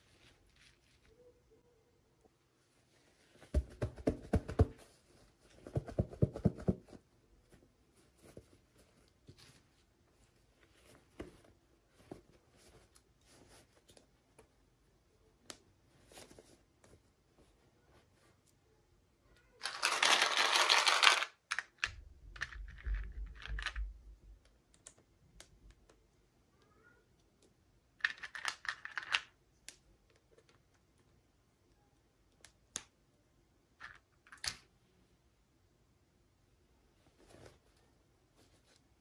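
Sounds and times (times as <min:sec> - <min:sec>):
soft thuds: 0:03.4 - 0:04.9
plastic packaging crinkling: 0:19.6 - 0:21.6.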